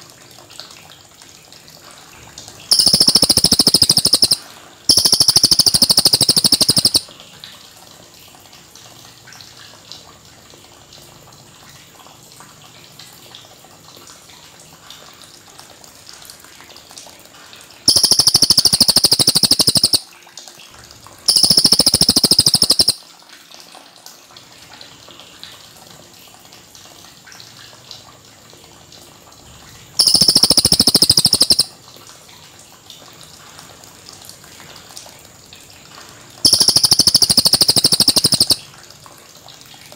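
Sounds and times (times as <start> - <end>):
faint hiss: 30.0 - 31.7, 36.4 - 38.6.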